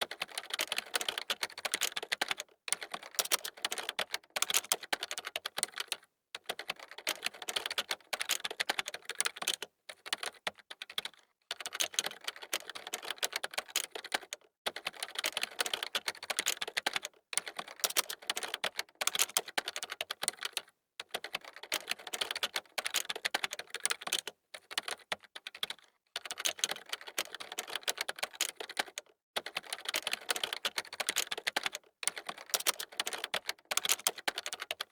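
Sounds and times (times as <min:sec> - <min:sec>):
fast typing on keyboard: 0:00.0 - 0:34.9.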